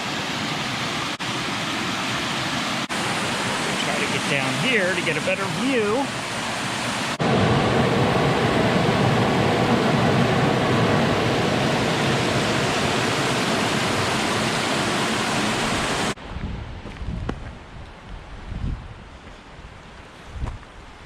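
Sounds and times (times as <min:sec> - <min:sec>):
water rushing over waterfall: 0:00.0 - 0:16.2.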